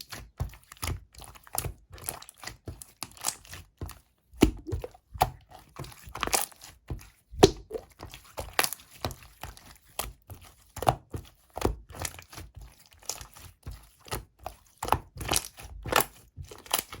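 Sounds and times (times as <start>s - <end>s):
slime popping and clicking: 4.4s - 4.9s, 7.4s - 7.8s
slime squelching: 4.4s - 5.2s, 7.4s - 8.0s.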